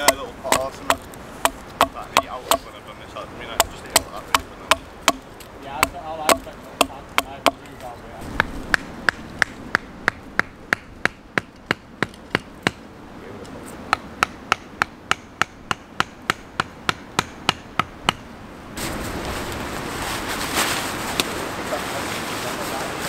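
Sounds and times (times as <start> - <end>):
hatchet chopping wood: 0.0 - 2.7, 3.6 - 7.7, 8.4 - 12.8, 13.9 - 18.3
steady rushing noise: 0.0 - 23.0.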